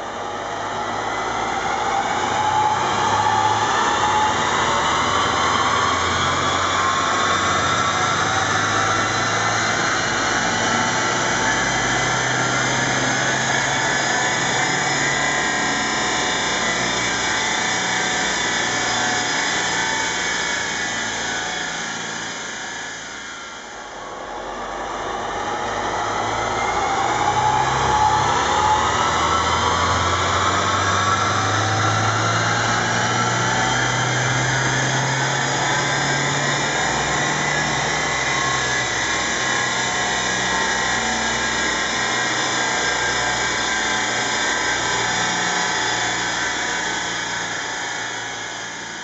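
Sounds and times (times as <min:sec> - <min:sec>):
high whine: 0:00.0 - 0:49.0.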